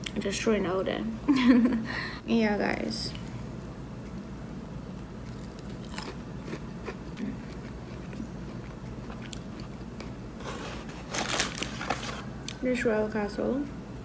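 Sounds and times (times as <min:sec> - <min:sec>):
person chewing crispy chicken: 0:05.2 - 0:10.2.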